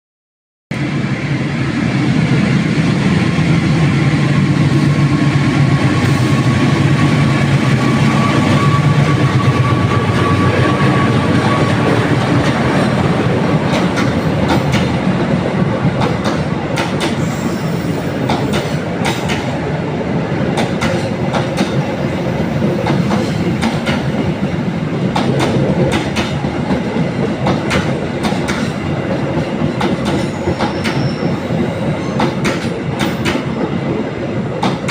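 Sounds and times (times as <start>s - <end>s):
train wheels clacking on rails: 3.1s - 19.7s, 20.5s - 34.9s.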